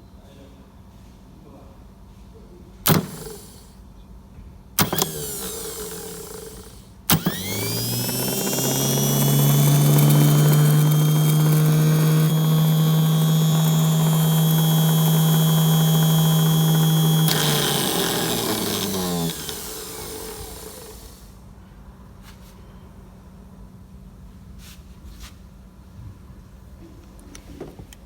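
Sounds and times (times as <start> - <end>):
small electric motor whining: 2.9 - 3.7, 4.8 - 21.4
switch click: 2.9 - 3.7.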